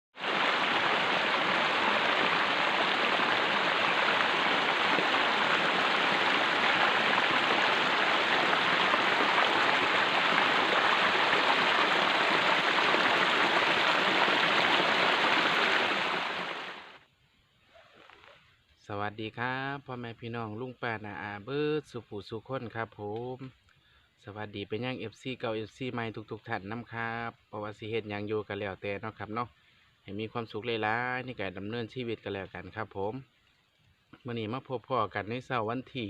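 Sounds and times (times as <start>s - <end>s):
running water rushing: 0.1s - 17.0s.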